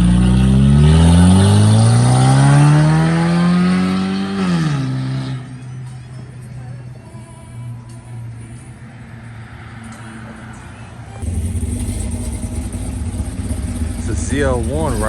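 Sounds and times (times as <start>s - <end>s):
car engine accelerating hard: 0.0s - 5.9s, 11.2s - 15.0s.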